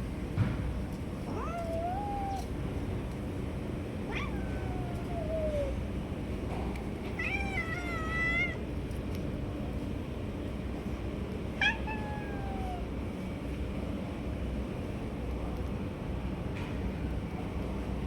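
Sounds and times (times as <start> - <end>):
cat meowing: 1.3 - 2.6, 4.0 - 5.8, 7.1 - 8.7, 11.6 - 12.9.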